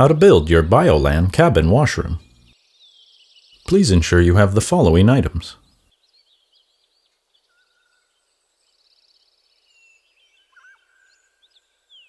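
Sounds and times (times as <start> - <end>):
faint birds chirping: 0.0 - 12.0
bird trill: 5.6 - 12.0.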